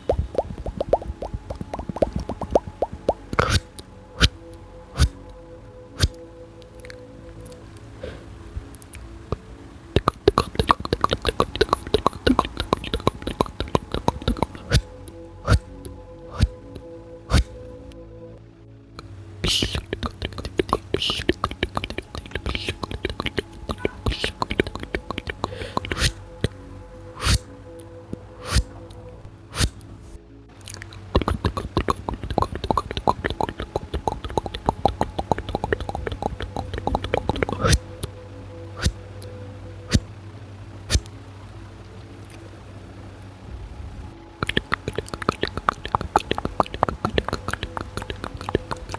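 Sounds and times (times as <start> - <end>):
wet tongue clicks: 0.0 - 3.6, 10.0 - 14.9, 19.0 - 26.6, 30.6 - 38.1, 44.4 - 48.9
lip pops: 0.0 - 4.4, 10.0 - 14.9, 19.4 - 26.6, 30.7 - 37.8, 44.4 - 48.9
faint low hum: 0.0 - 48.9
soft background music: 0.0 - 48.9.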